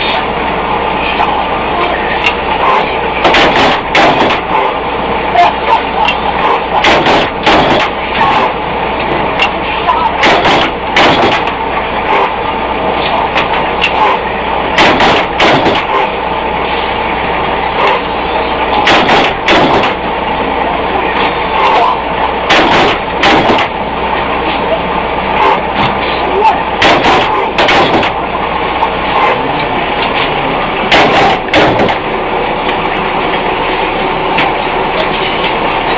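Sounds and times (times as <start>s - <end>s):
industrial machinery noise: 0.0s - 35.9s
metal clanks and bangs: 2.2s - 4.8s, 5.5s - 12.4s, 13.0s - 16.9s, 17.8s - 20.5s, 21.1s - 24.8s, 25.4s - 33.0s.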